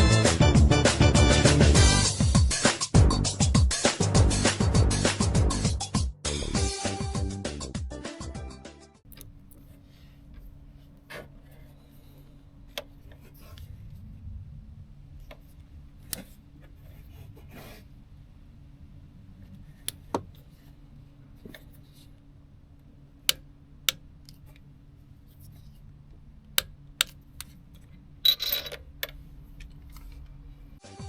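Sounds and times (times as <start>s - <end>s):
low steady hum: 9.0s - 30.8s.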